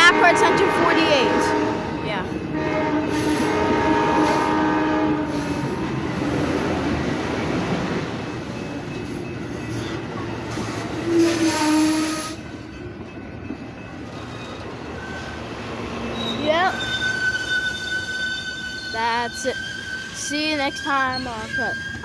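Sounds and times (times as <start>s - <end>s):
train air horn: 0.0s - 6.5s, 10.6s - 12.4s
train wheels rumbling: 0.0s - 22.0s.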